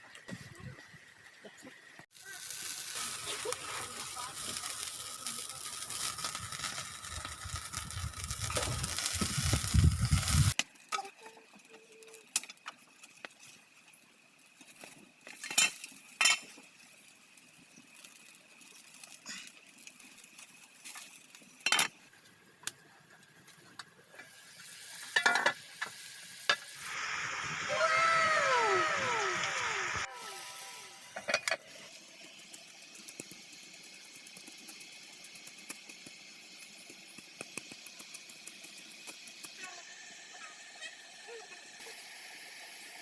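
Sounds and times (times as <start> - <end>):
food sizzling: 0.0 - 43.0
utensils clinking on cookware: 25.1 - 25.6.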